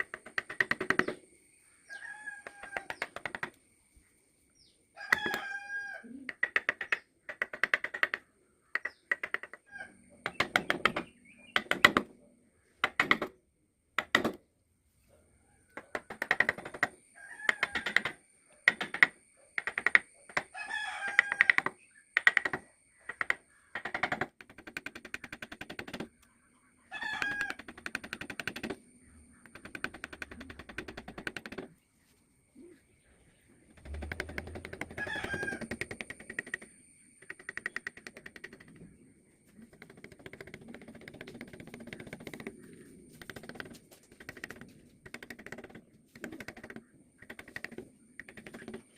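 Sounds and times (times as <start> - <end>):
hand tools clicking and tapping: 0.0 - 1.2, 2.4 - 3.6, 6.2 - 9.6, 10.2 - 12.0, 15.8 - 20.5, 21.1 - 26.2, 27.1 - 28.8, 29.4 - 31.7, 33.8 - 38.9, 39.6 - 42.6, 43.2 - 48.9
rooster crowing: 1.9 - 3.0, 5.0 - 6.2, 17.2 - 18.0, 20.5 - 21.6, 26.9 - 27.6, 34.9 - 35.8.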